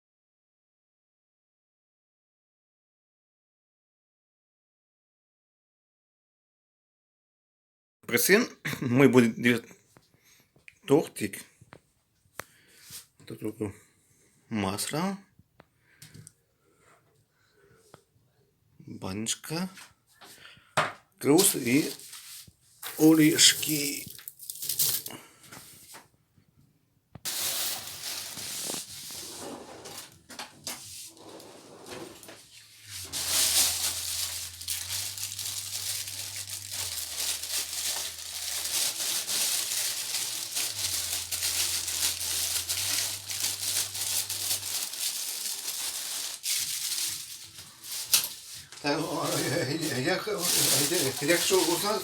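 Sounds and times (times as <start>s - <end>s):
dense crackling rustle: 27.3s - 30.1s, 31.1s - 52.0s.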